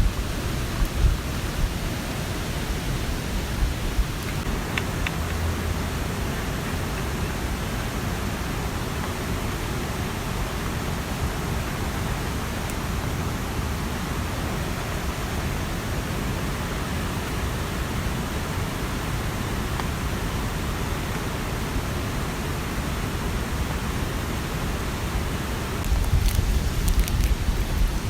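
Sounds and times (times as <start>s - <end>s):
low rumbling with sharp patters: 0.0s - 6.0s, 25.8s - 28.0s
mountain stream rushing: 0.0s - 28.0s
rain in forest: 0.0s - 28.0s.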